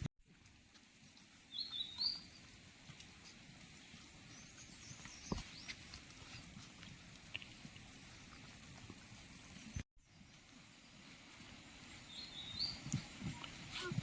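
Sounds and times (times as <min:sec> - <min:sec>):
quiet outdoor hiss: 0:00.2 - 0:14.0.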